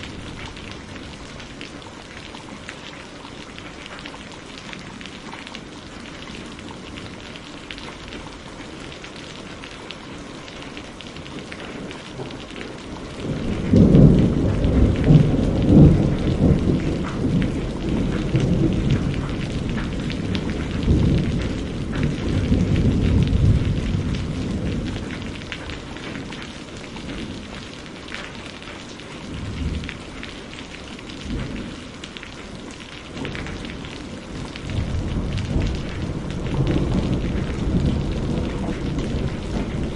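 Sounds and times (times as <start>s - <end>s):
steady rain falling: 0.0s - 39.9s
rolling thunder: 13.2s - 26.0s, 33.2s - 39.9s.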